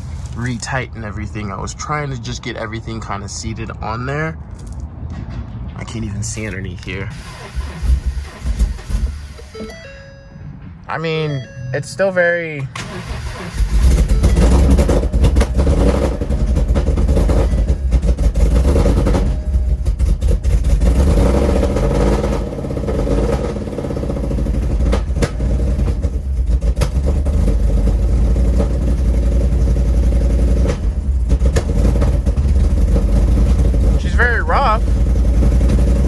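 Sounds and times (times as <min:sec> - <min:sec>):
exhaust pops: 0:05.8 - 0:09.5, 0:12.6 - 0:36.0
car engine running rough: 0:06.3 - 0:11.6, 0:12.6 - 0:36.0.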